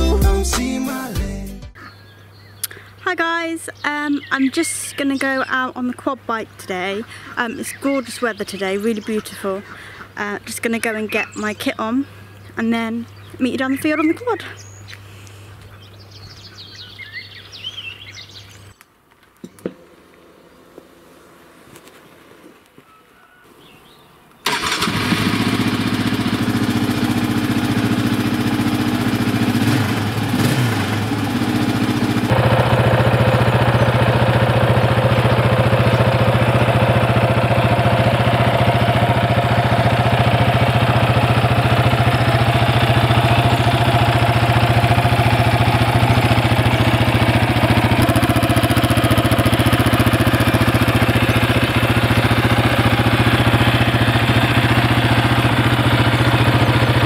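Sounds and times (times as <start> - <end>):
quad bike engine running: 24.5 - 57.0.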